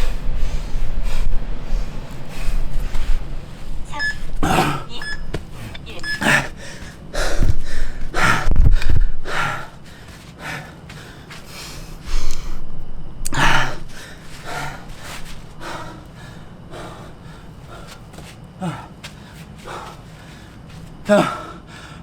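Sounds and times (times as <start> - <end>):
low thuds: 0.0 - 9.8
man gasping for breath: 0.0 - 12.6, 13.3 - 22.0.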